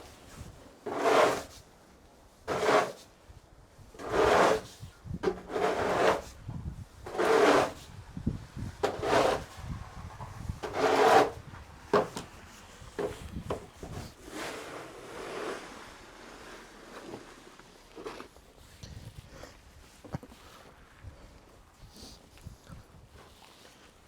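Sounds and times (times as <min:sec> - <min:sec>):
snow shovel scraping snow: 0:00.0 - 0:01.7, 0:02.5 - 0:03.2, 0:04.0 - 0:06.4, 0:07.0 - 0:07.9, 0:08.8 - 0:09.6, 0:10.6 - 0:18.7.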